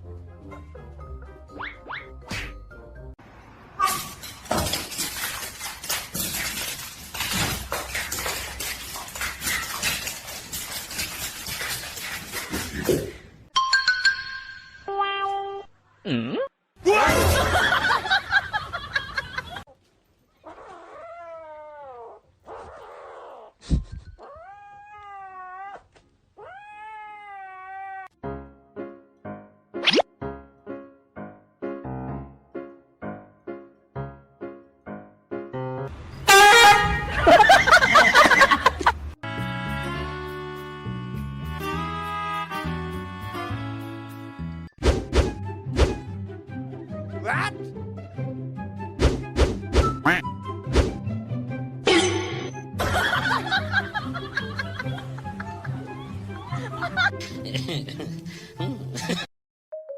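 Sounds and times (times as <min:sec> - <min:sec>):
cat meowing: 0:24.2 - 0:28.1
piano music: 0:28.2 - 0:37.2
comic music with springy glides: 0:39.3 - 0:57.8.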